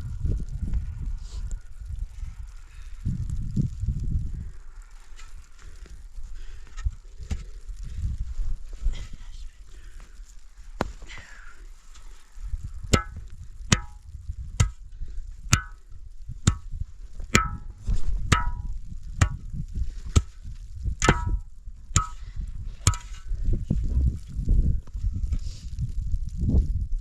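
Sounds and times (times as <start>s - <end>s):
hand tool striking hard surface: 12.9s - 14.0s, 14.6s - 14.8s, 15.5s - 15.8s, 16.4s - 16.7s, 17.3s - 19.4s, 20.1s - 20.3s, 21.0s - 22.2s, 22.8s - 23.2s.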